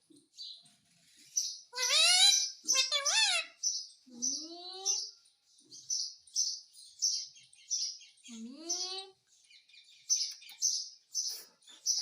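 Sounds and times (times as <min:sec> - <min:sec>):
parrot chirping: 0:01.4 - 0:03.9.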